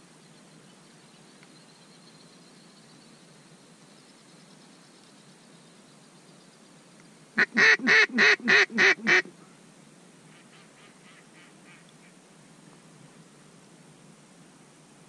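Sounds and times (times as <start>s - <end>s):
duck quacking: 7.4s - 9.3s.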